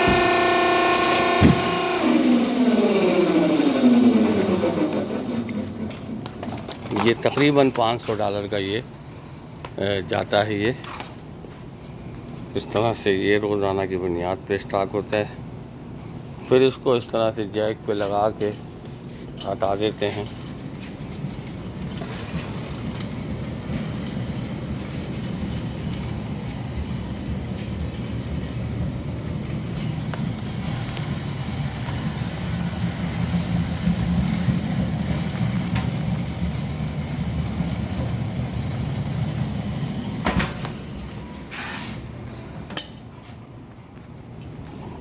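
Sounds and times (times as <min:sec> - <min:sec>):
sharp knocks: 0:00.0 - 0:00.5, 0:01.2 - 0:01.9
low machine hum: 0:00.0 - 0:45.0.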